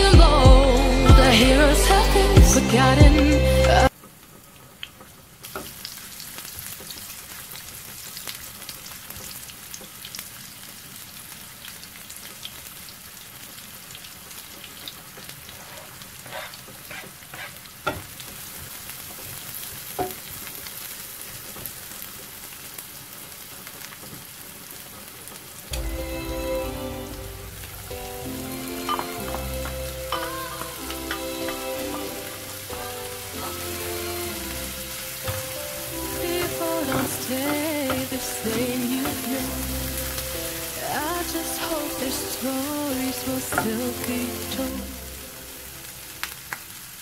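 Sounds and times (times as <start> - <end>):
music: 0.0 - 3.9, 25.7 - 46.3
onions sizzling in oil: 3.9 - 47.0.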